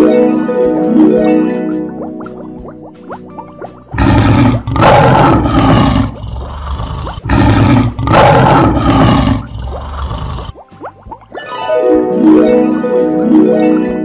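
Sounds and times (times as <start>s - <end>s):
cartoon lion roar: 4.0s - 10.5s.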